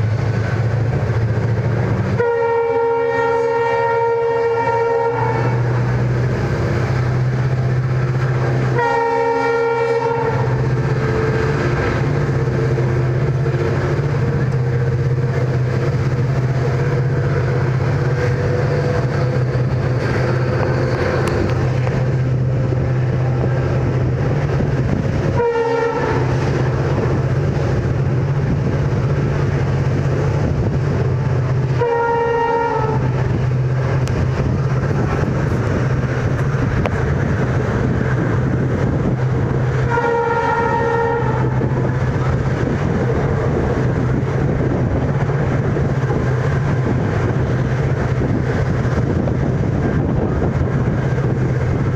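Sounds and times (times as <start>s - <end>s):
train rumbling at speed: 0.0s - 51.9s
locomotive horn blasts: 2.1s - 6.0s, 8.6s - 11.7s, 25.3s - 27.0s, 31.7s - 33.4s, 39.8s - 42.2s.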